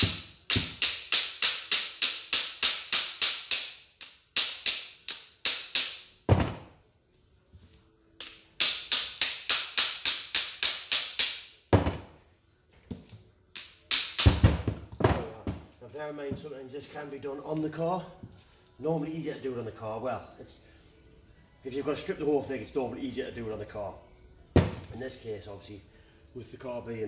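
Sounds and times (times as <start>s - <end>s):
hammer striking metal: 0.0s - 6.1s.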